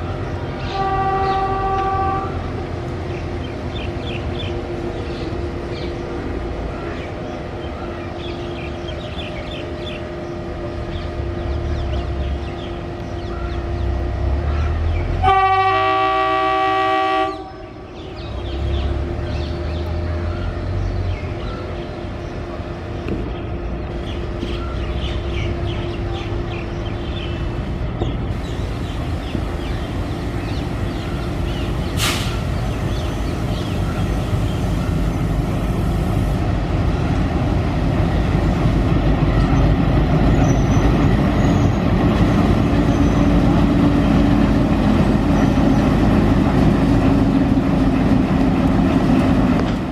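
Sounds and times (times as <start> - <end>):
train rumbling and clattering past: 0.0 - 49.9
locomotive horn: 0.6 - 2.6, 15.2 - 17.8.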